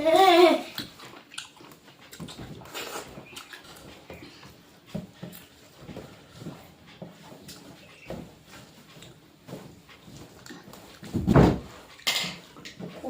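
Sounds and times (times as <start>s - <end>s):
wet chewing and lip smacking: 0.6s - 4.6s, 10.4s - 10.7s.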